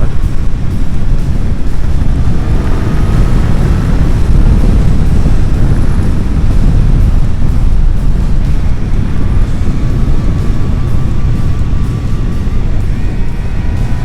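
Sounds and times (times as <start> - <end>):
faint motorcycle engine: 0.0 - 14.0
wind rumble on microphone: 0.0 - 14.0.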